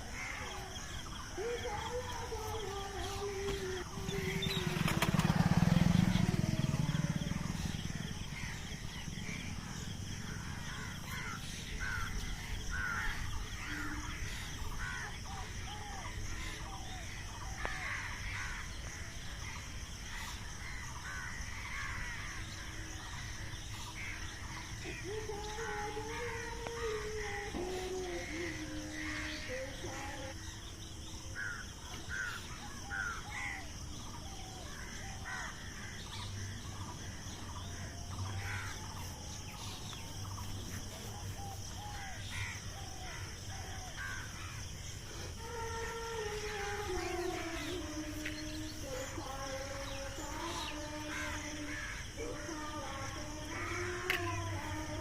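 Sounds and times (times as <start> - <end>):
low engine rumble: 0.0 - 20.5
small birds chirping: 0.0 - 55.0
low wavering bird call: 44.9 - 55.0.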